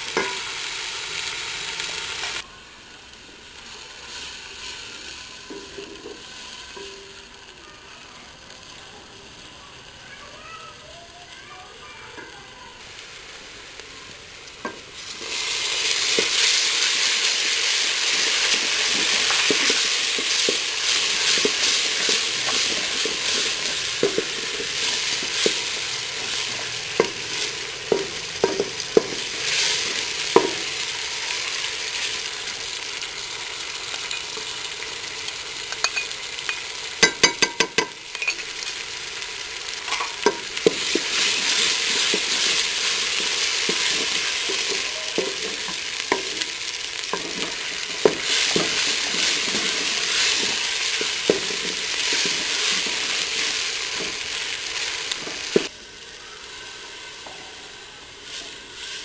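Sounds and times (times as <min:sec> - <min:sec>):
onions and tomatoes sizzling: 0:00.0 - 0:59.0
spoon knocking pot: 0:37.0 - 0:38.4.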